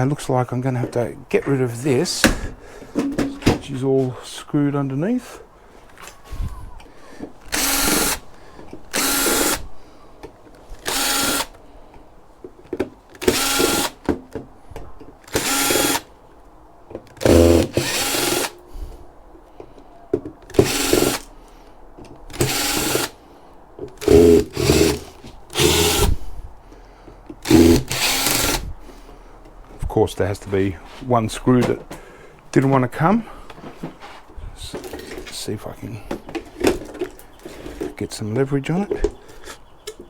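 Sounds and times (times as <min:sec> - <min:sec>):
metal tray handling: 0:02.1 - 0:03.8
power drill driving screws: 0:07.5 - 0:08.3, 0:08.9 - 0:09.7, 0:10.8 - 0:11.6, 0:13.1 - 0:14.0, 0:15.2 - 0:16.1, 0:17.2 - 0:18.6, 0:20.5 - 0:21.3, 0:22.3 - 0:23.2, 0:24.0 - 0:26.2, 0:27.4 - 0:28.7.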